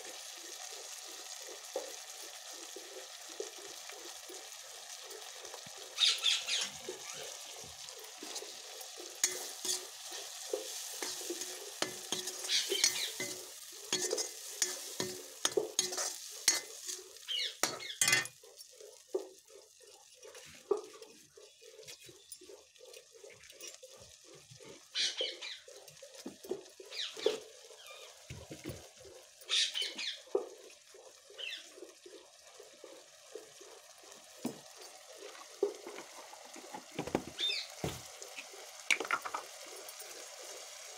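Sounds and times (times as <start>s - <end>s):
food sizzling and bubbling: 0.0s - 40.9s.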